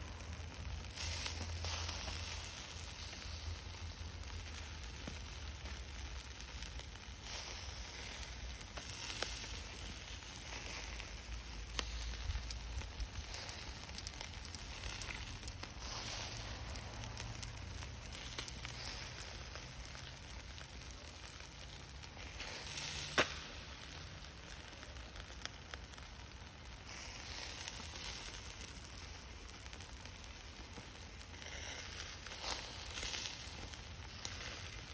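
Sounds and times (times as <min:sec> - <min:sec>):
food sizzling in a pan: 0:00.6 - 0:06.6, 0:07.2 - 0:20.2, 0:21.6 - 0:25.6.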